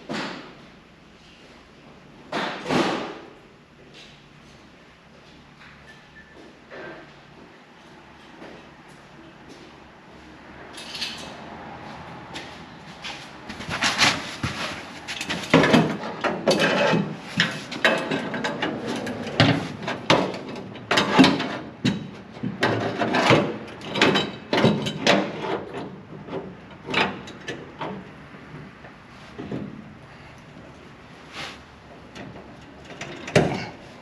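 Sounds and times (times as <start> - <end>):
metal clamp clunking and scraping: 15.1 - 28.0, 32.2 - 33.8.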